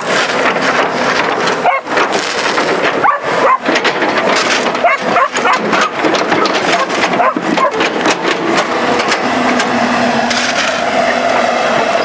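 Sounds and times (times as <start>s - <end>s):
excavator running: 0.0s - 12.0s
dog barking: 1.6s - 1.9s, 3.0s - 3.7s, 4.8s - 5.7s, 6.7s - 7.8s.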